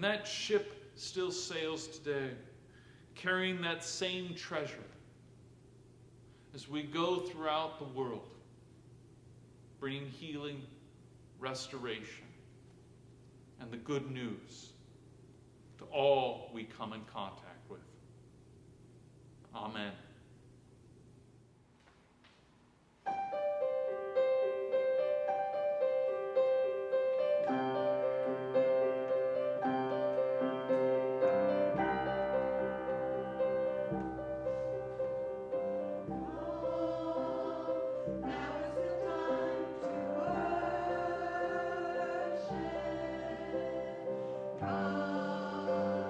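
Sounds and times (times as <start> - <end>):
choir singing sustained chords: 23.8 - 46.0.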